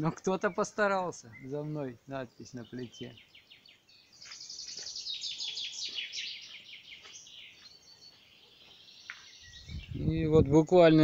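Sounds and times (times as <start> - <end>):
songbirds singing: 0.0 - 11.0.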